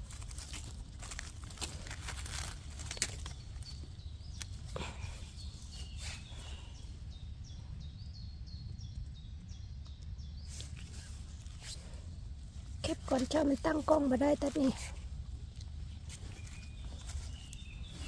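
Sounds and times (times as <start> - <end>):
dry leaves crackling: 0.0 - 6.8, 10.5 - 18.0
low steady rumble: 0.0 - 18.0.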